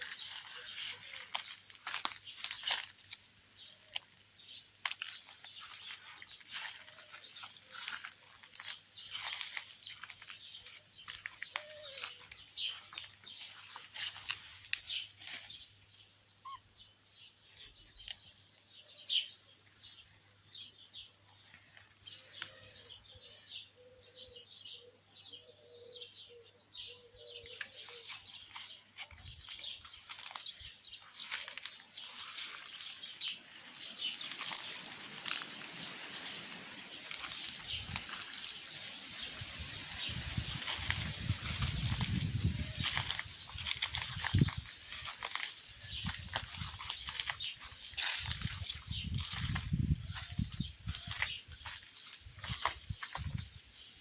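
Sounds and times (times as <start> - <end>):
animals rustling in dry vegetation: 0.0 - 24.8, 26.3 - 54.0.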